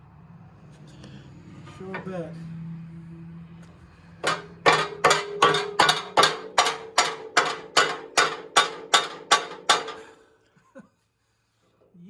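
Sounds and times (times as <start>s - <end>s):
hammer striking metal: 4.2s - 10.1s.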